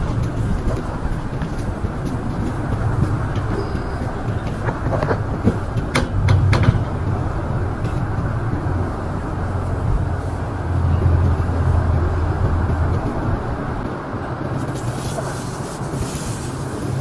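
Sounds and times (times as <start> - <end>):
engine humming: 0.0 - 17.0
sharp clicks or knocks: 4.8 - 7.2.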